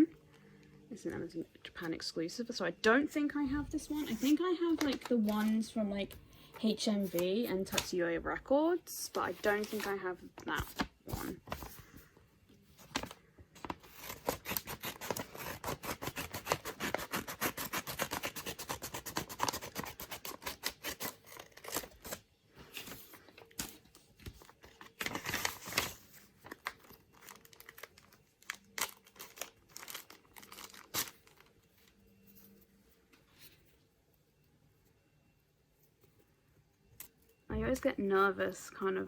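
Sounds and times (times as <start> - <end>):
packaging crackling and tearing: 12.9 - 22.2, 22.9 - 31.6.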